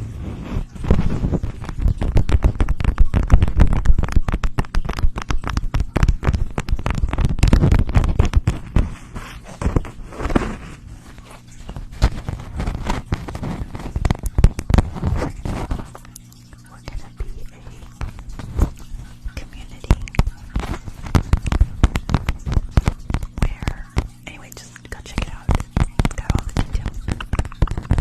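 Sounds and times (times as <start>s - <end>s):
dense crackling and clicking: 0.6s - 28.0s.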